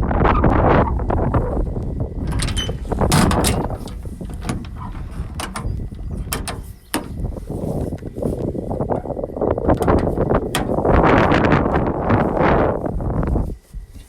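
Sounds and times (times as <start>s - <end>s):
wind buffeting microphone: 0.0s - 14.0s
truck door latch clicking: 2.2s - 7.4s, 9.8s - 10.8s.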